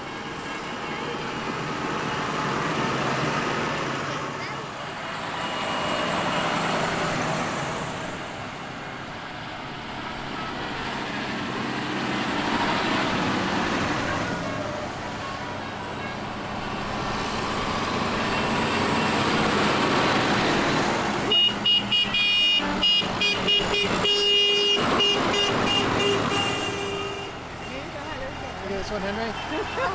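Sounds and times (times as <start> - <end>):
tractor engines passing: 0.0 - 29.9
vehicle horn short toots: 21.3 - 27.9.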